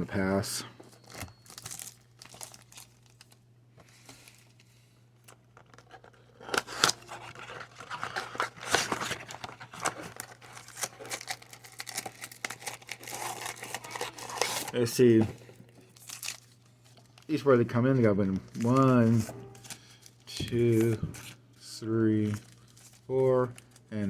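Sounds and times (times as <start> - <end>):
plastic wrap and cardboard tearing: 0.9 - 3.4, 5.5 - 15.2, 15.9 - 17.4.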